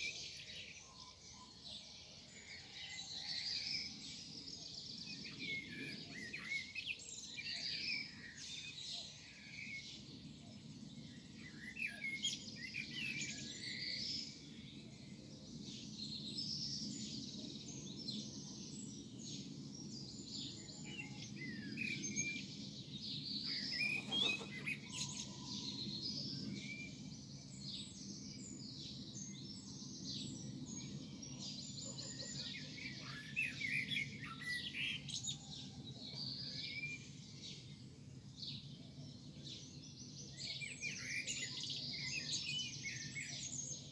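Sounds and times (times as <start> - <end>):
birds chirping and trilling: 16.9 - 37.8.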